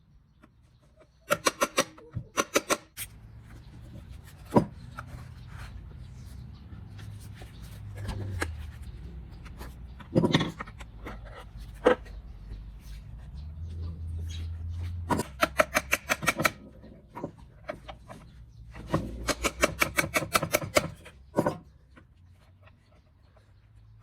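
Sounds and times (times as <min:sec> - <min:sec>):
knocks and rubbing: 0:03.4 - 0:22.1
sharp clicks: 0:15.2 - 0:16.6.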